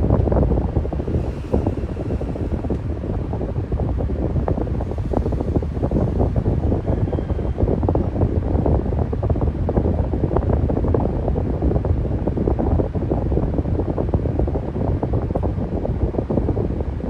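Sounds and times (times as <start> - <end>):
air buffeting microphone: 0.0 - 17.0
electric fan running: 0.0 - 17.0.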